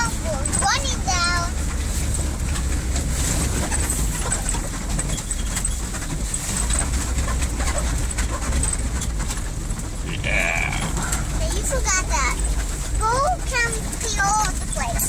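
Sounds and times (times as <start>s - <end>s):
pickup truck engine and road noise: 0.0s - 10.1s, 10.9s - 15.0s.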